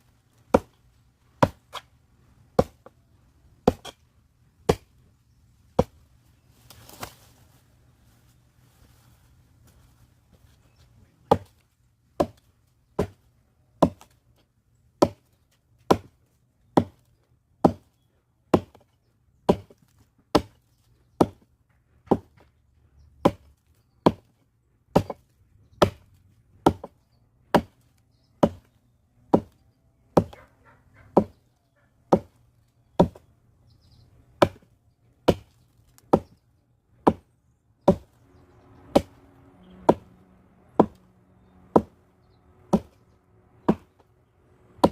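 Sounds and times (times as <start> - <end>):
axe chopping firewood: 0.4 - 0.8, 1.4 - 1.9, 2.5 - 3.0, 3.6 - 5.1, 5.7 - 6.0, 11.2 - 14.4, 15.0 - 17.9, 18.5 - 22.6, 23.2 - 31.4, 32.1 - 33.3, 34.3 - 38.2, 38.8 - 39.2, 39.8 - 40.1, 40.7 - 41.0, 41.6 - 42.0, 42.6 - 44.1, 44.7 - 44.9.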